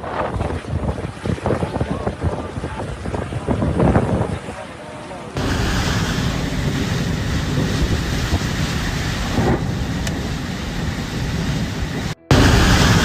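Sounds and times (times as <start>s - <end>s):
storm wind buffeting microphone: 0.0s - 13.0s
rain: 5.4s - 13.0s.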